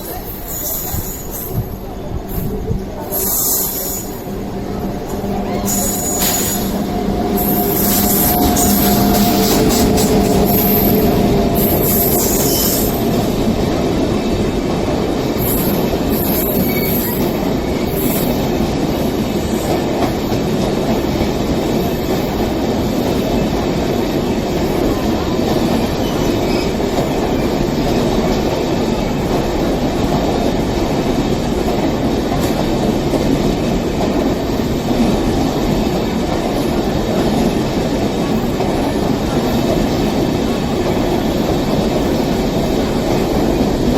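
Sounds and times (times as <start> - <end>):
rail-joint clatter: 0.0 - 13.6
train wheels rushing on rails: 0.0 - 43.9.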